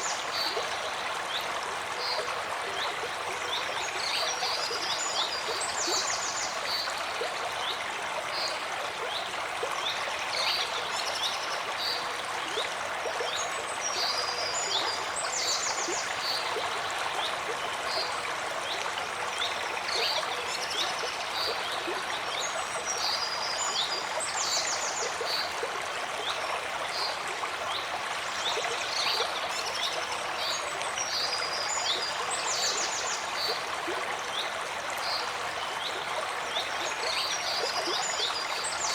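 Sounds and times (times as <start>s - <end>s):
stream flowing and babbling: 0.0s - 38.9s.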